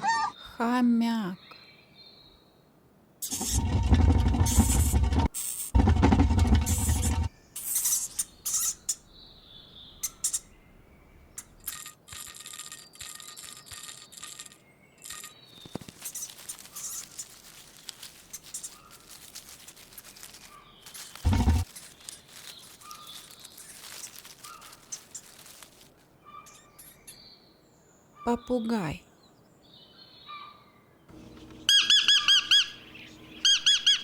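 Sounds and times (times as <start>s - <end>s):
small clicks and scratching: 3.3s - 8.6s, 11.4s - 27.0s
hamster squeaking: 18.3s - 25.4s.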